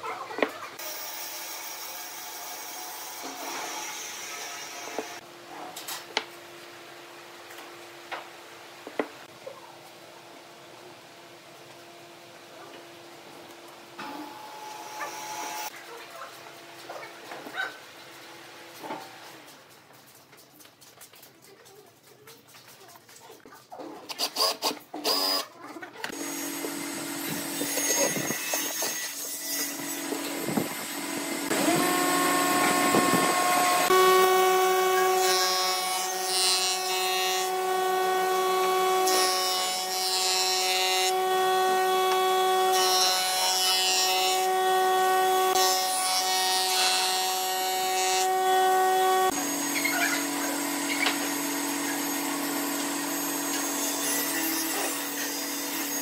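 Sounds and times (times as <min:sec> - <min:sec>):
wood lathe motor whine: 0:29.9 - 0:39.1.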